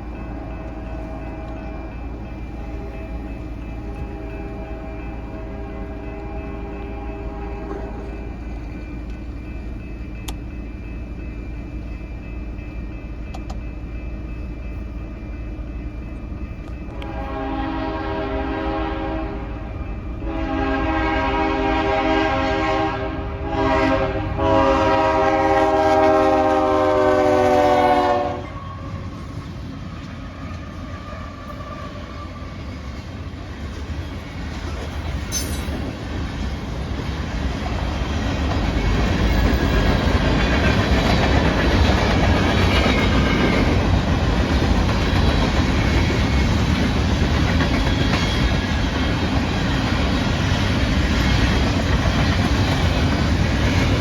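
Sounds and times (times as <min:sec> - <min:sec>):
locomotive rumble: 0:00.0 - 0:54.0
locomotive air horn blowing: 0:03.9 - 0:08.0, 0:16.9 - 0:29.1
wheels clattering on rail joints: 0:28.9 - 0:54.0.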